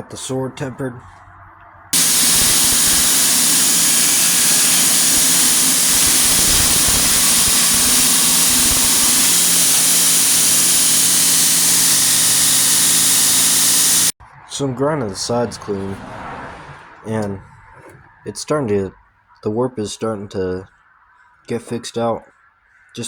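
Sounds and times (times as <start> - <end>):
grinder hissing on steel: 2.0 - 14.2
grinder motor hum: 2.0 - 14.2.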